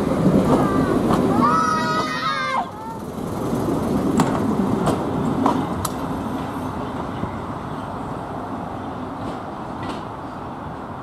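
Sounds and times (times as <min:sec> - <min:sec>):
wheels clicking over rail joints: 0:00.0 - 0:07.7, 0:09.1 - 0:10.9
diesel train running past: 0:00.0 - 0:11.0.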